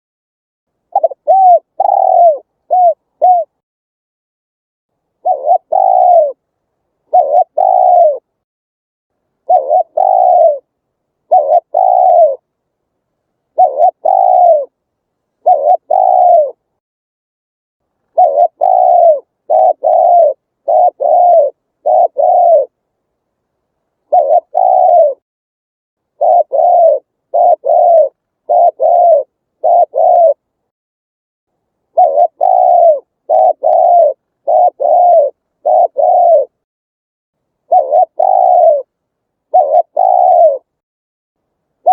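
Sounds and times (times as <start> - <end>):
dove cooing: 0.9 - 3.6, 5.2 - 6.4, 7.0 - 8.3, 9.4 - 12.5, 13.5 - 14.8, 15.4 - 16.6, 18.1 - 22.8, 24.0 - 25.2, 26.2 - 30.5, 31.9 - 36.6, 37.6 - 40.8.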